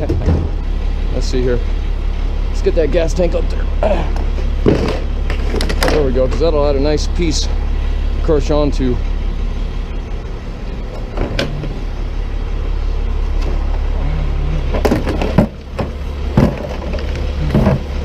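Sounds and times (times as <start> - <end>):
objects knocking and clattering: 0.0 - 0.6, 4.2 - 6.4, 14.7 - 18.0
truck engine idling: 0.0 - 18.0.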